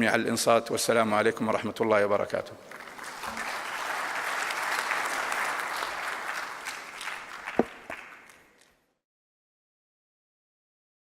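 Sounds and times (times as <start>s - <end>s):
audience applause: 2.7s - 8.6s.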